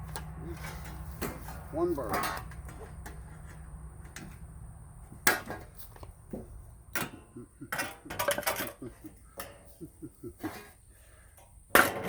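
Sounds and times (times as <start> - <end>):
objects knocking and clattering: 5.2 - 9.8.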